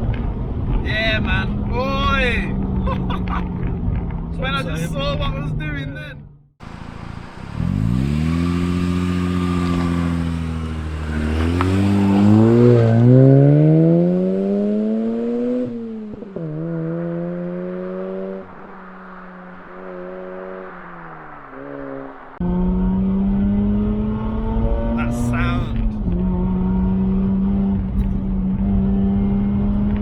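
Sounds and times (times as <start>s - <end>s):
rotary engine accelerating: 6.6s - 30.0s.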